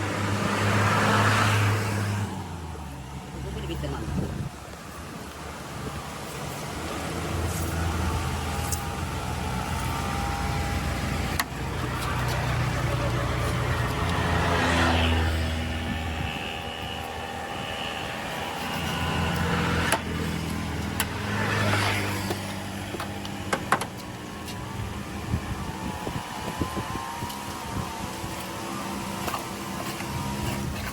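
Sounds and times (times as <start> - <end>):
vehicle engines running: 0.0 - 30.9
vehicles passing: 0.0 - 30.9.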